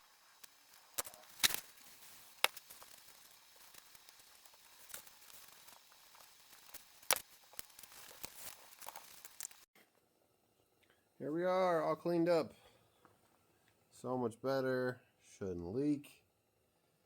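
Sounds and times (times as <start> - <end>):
faint hiss: 0.0 - 9.7.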